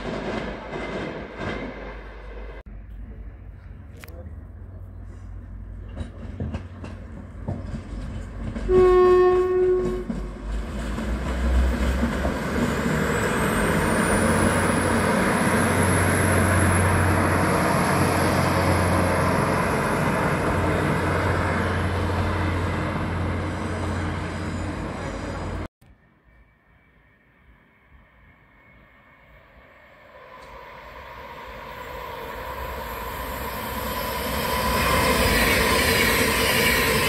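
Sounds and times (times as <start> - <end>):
train engine rumble: 0.0 - 37.0
wheel noise on rails: 0.0 - 37.0
train horn blast: 8.6 - 10.4.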